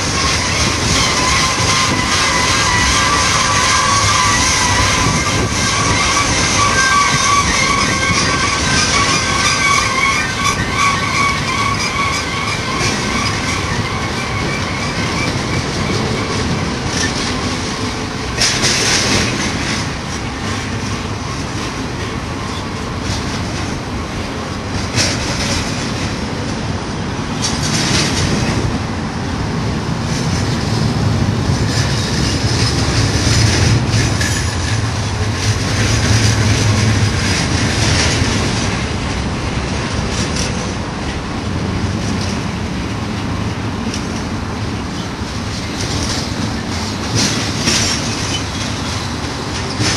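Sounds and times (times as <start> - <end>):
high-pitched wheel squeal: 0.0 - 17.6
clickety-clack over rail joints: 0.0 - 49.9
freight train wheels rumbling: 0.0 - 49.9.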